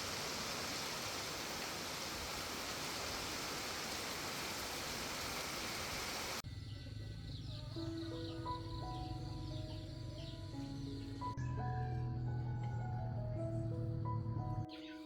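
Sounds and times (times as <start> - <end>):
heavy rain hiss: 0.0 - 6.4
gentle music: 6.4 - 15.0.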